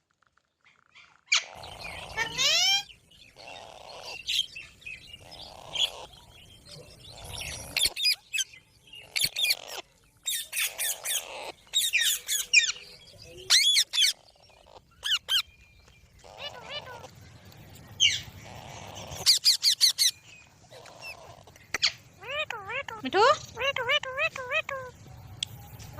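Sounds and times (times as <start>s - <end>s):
parrot shrieking: 2.2s - 2.9s.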